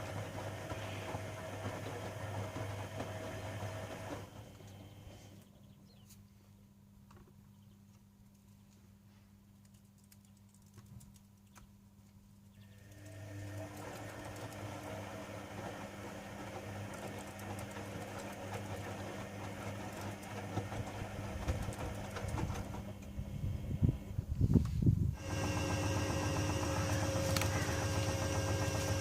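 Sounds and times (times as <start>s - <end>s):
washing machine motor hum: 0.0s - 5.8s, 12.6s - 24.4s, 25.0s - 29.0s.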